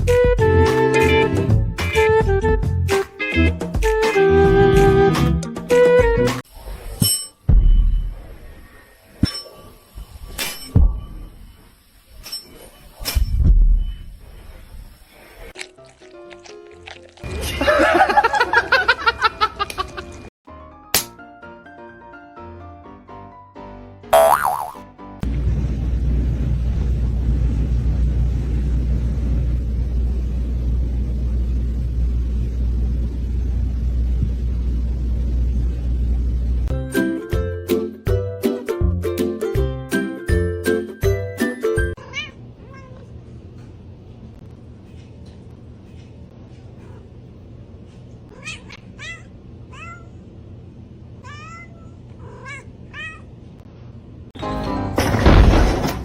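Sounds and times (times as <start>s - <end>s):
cat meowing: 42.0s - 43.1s, 48.3s - 50.2s, 51.2s - 53.3s.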